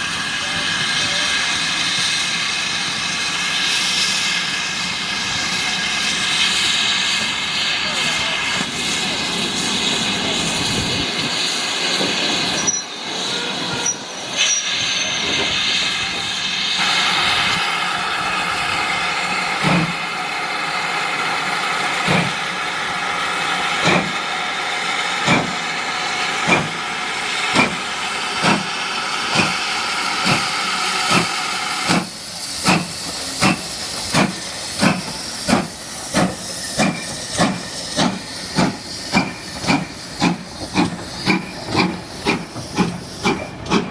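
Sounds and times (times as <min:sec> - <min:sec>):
steam hissing: 0:00.0 - 0:43.9
locomotive exhaust chuffs: 0:16.8 - 0:43.9.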